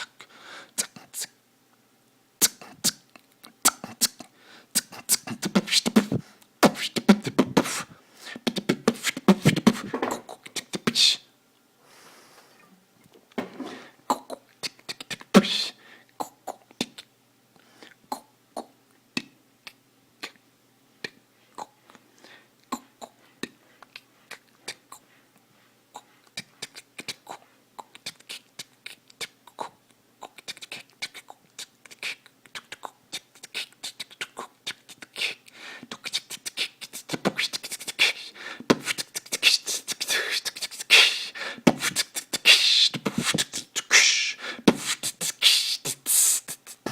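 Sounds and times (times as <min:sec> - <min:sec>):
beatboxing mouth clicks and pops: 0:00.8 - 0:01.4, 0:02.4 - 0:11.2, 0:14.1 - 0:17.1, 0:17.8 - 0:20.4, 0:21.0 - 0:22.0, 0:22.6 - 0:25.0, 0:26.0 - 0:46.9.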